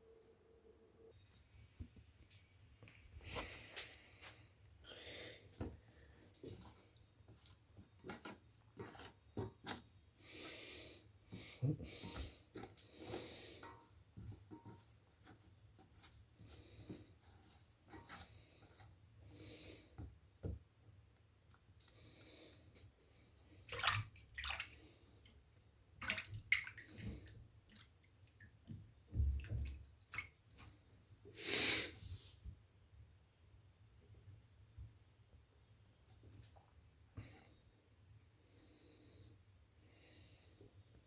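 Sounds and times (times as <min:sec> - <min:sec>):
hands splashing water in a basin: 0:23.5 - 0:28.5, 0:29.2 - 0:30.8.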